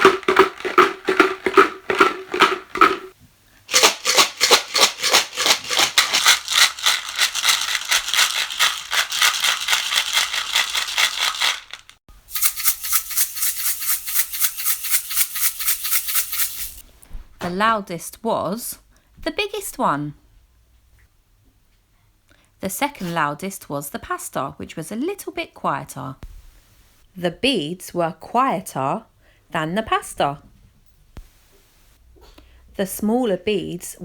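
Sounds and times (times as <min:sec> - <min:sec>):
shaker containers rattling: 0:00.0 - 0:16.8.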